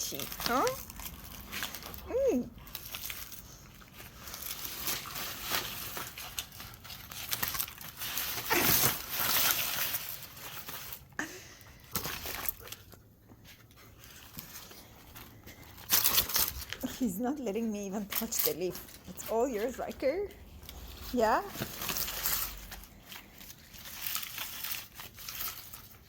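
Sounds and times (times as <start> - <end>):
dog chewing and tearing a leaf: 0.0 - 11.1, 11.9 - 13.0, 13.7 - 26.0.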